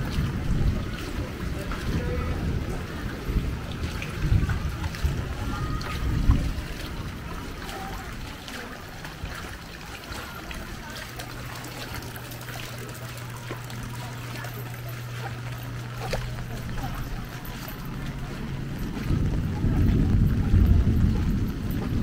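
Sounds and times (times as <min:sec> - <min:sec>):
steady low hum: 0:00.0 - 0:22.0
water trickling: 0:00.0 - 0:22.0
low rumble: 0:14.9 - 0:22.0
heavy rain falling: 0:17.9 - 0:22.0.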